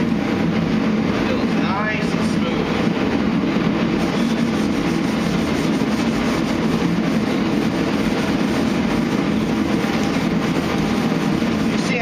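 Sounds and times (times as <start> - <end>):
orbital sander running: 4.0 - 12.0.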